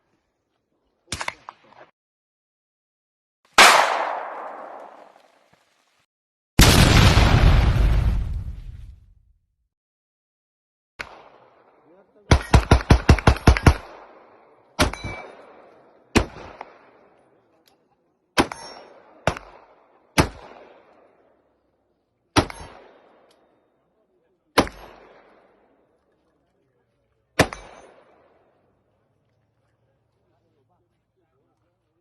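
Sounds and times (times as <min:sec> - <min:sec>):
gunshots with echo: 0:03.5 - 0:05.2.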